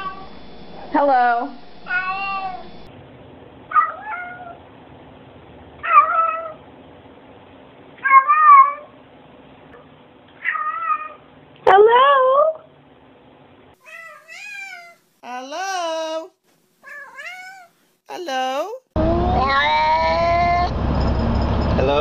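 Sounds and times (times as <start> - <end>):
cat meowing: 1.9 - 2.7, 3.7 - 4.6, 5.8 - 6.6, 8.0 - 8.9, 10.4 - 11.2, 13.8 - 15.0, 16.8 - 17.8, 19.3 - 20.6.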